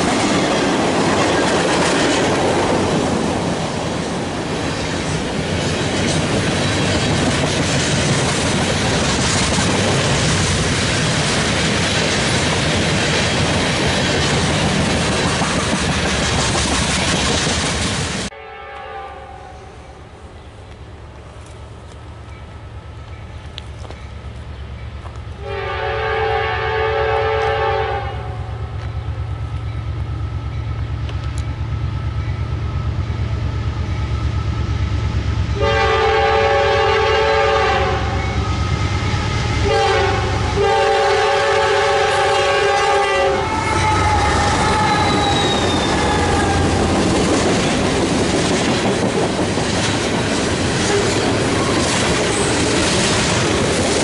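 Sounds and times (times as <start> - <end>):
train wheels clickety-clack: 0.0 - 18.3, 37.6 - 54.0
train air horn: 18.3 - 20.1, 25.4 - 28.6, 35.6 - 46.9
locomotive engine rumble: 28.5 - 54.0.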